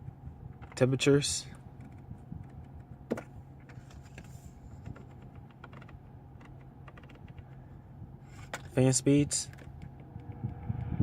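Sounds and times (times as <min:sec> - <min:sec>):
low hum: 0:09.6 - 0:11.0.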